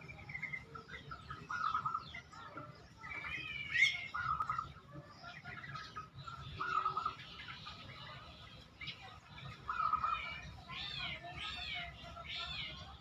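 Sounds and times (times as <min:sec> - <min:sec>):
dove cooing trilled song: 0:00.0 - 0:07.4
birds chirping: 0:00.0 - 0:13.0.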